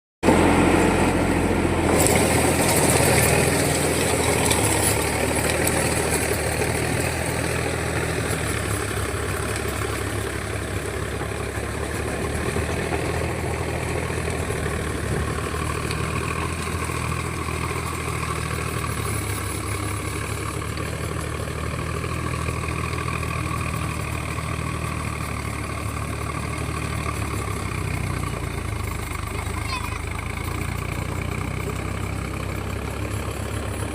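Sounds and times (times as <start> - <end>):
tractor engine running: 0.2 - 33.9.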